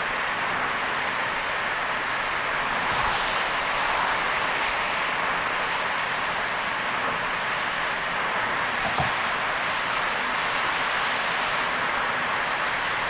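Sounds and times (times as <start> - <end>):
rain and tyres on wet road: 1.3 - 8.0
brief knock: 8.8 - 9.2.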